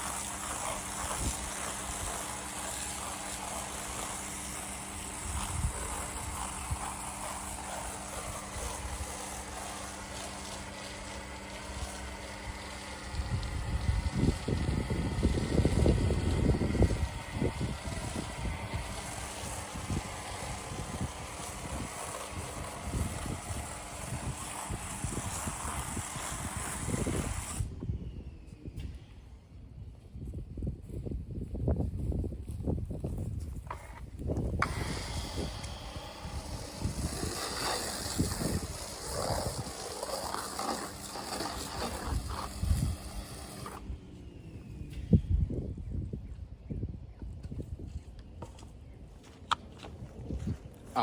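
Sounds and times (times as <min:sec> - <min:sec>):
wind buffeting microphone: 0:00.0 - 0:10.6, 0:11.7 - 0:51.0
pressure washer motor hum: 0:00.0 - 0:28.0, 0:33.6 - 0:44.8.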